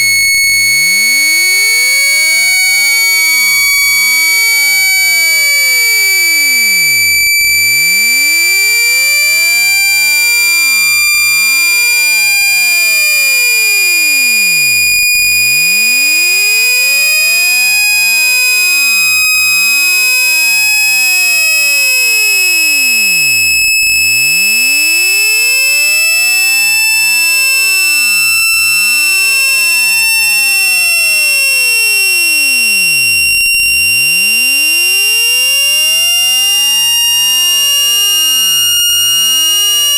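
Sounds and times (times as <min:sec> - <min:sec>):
high-pitched electronic tone: 0:00.0 - 0:38.6
sweeping electronic tones: 0:00.8 - 0:37.3.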